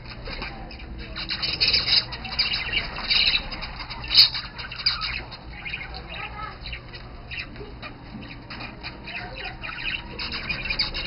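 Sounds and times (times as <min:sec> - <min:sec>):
budgerigars chattering and squawking: 0:00.0 - 0:11.0.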